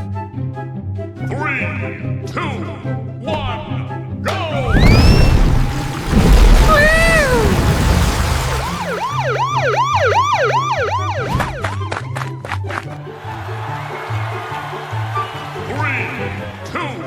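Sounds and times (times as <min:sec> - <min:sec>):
falling whistle-like glide: 0:04.6 - 0:07.5
siren-like cartoon sound effect: 0:04.6 - 0:07.7, 0:08.8 - 0:12.0.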